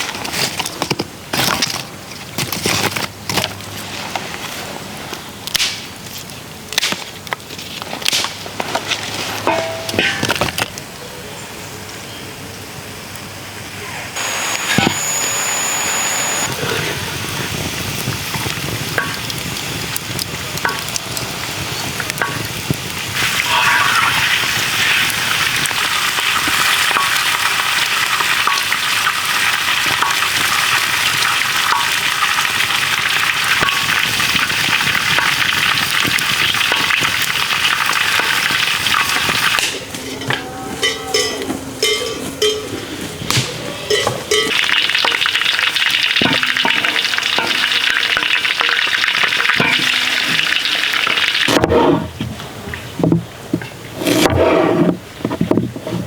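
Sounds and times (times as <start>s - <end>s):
food sizzling in a pan: 14.2s - 20.0s, 21.3s - 39.6s, 44.5s - 51.6s
stirring in a pan: 44.3s - 51.6s
knocks and clinks: 46.2s - 51.6s.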